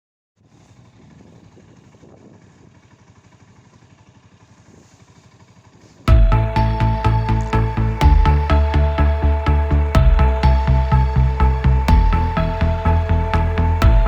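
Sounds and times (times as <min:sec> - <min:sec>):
motorcycle engine running: 0:00.4 - 0:14.0
loud music with steady beat: 0:06.1 - 0:14.0.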